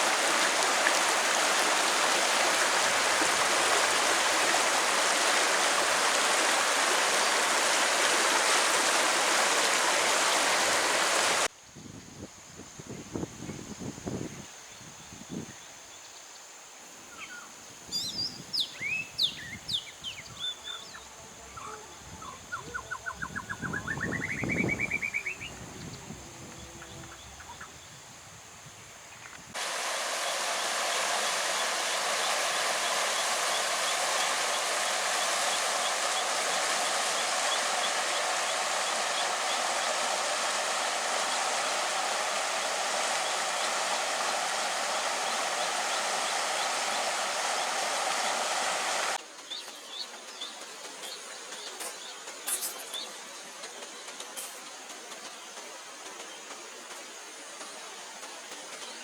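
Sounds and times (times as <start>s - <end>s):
stream rushing: 0.0s - 11.5s, 29.5s - 49.5s
birds chirping: 29.2s - 54.7s.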